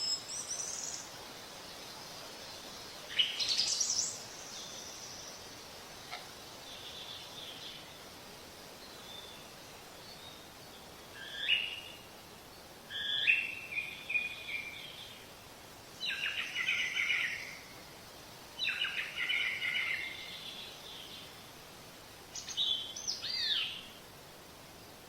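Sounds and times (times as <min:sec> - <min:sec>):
faint hiss: 0:00.0 - 0:25.0
songbird chirps and whistles: 0:12.9 - 0:15.2, 0:16.0 - 0:17.6, 0:18.6 - 0:21.2.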